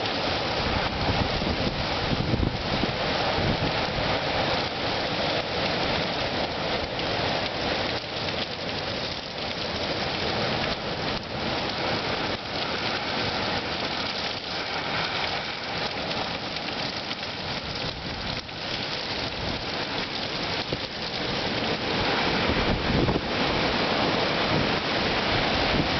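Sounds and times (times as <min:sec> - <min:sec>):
rain: 0:00.0 - 0:25.9
wind rushing: 0:21.9 - 0:25.9.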